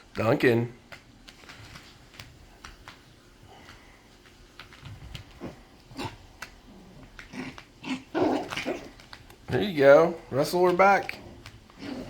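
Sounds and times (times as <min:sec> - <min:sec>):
light clicks and taps: 0:00.0 - 0:05.5
puppies scuffling: 0:00.0 - 0:12.0.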